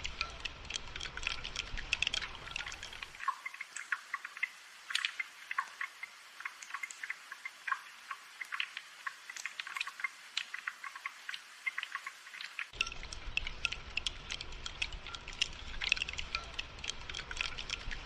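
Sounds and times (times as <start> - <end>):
rain dripping: 0.0 - 18.0.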